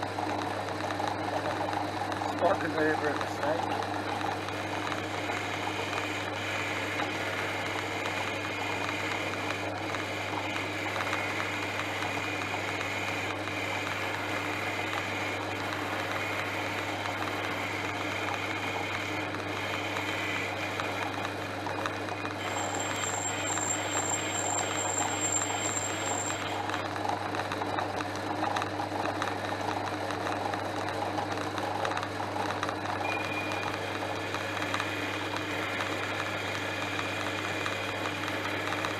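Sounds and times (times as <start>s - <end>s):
lathe motor humming: 0.0s - 38.9s
high thin whine: 22.4s - 26.8s.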